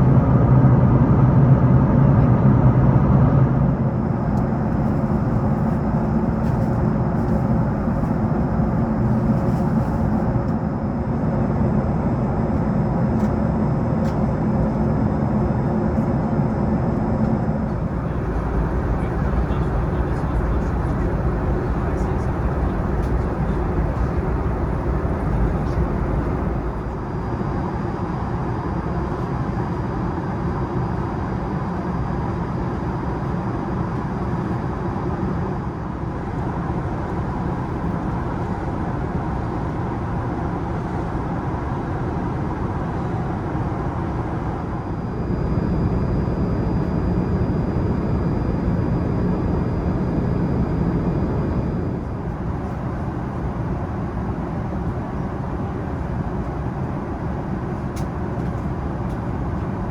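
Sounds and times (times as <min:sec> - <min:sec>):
airplane cabin roar: 0:00.0 - 0:29.9, 0:30.6 - 0:59.9
faint high whine: 0:17.6 - 0:27.4.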